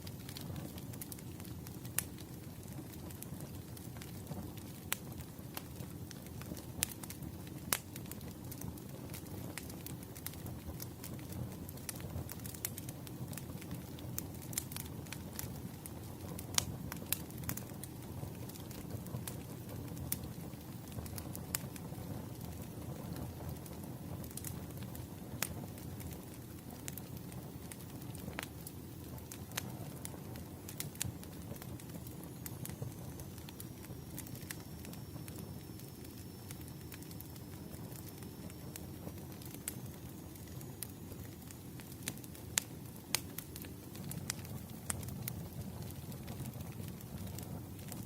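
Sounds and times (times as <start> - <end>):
fire rumble: 0.0 - 48.0
firewood crackling and popping: 0.0 - 48.0
faint high whistle: 32.6 - 38.8.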